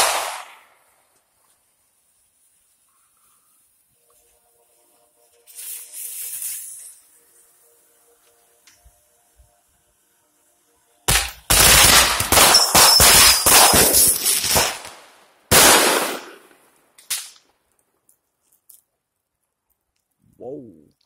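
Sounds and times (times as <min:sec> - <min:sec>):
fireworks bursting: 0:00.0 - 0:02.9, 0:05.2 - 0:09.0, 0:11.1 - 0:17.6
fireworks crackling: 0:00.0 - 0:10.0, 0:11.0 - 0:18.9.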